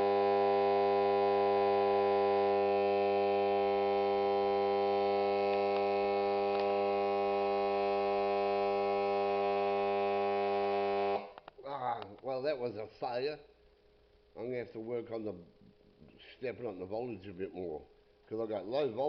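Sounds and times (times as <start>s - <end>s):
transformer humming: 0.0s - 11.4s.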